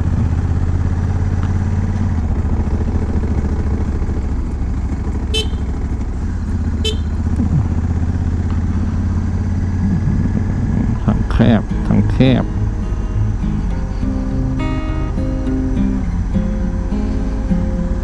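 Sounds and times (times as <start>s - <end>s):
motorcycle engine running: 0.0s - 18.0s
motorcycle horn toots: 5.2s - 5.8s, 6.7s - 7.3s.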